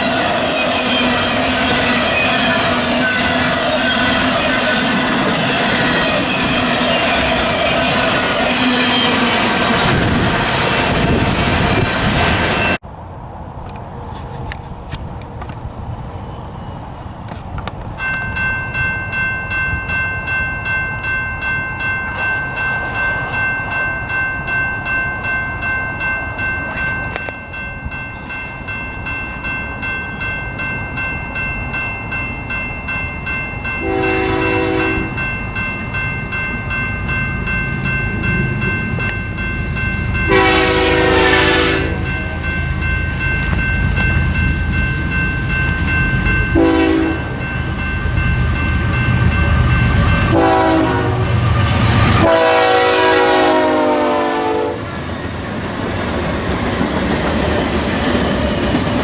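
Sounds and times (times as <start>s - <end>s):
crossing warning bell ringing: 0.0s - 12.8s, 17.7s - 59.0s
freight train rumble: 0.0s - 59.0s
locomotive horn blasts: 33.8s - 35.2s, 40.3s - 42.2s, 46.5s - 47.4s, 50.2s - 51.4s, 52.1s - 54.8s.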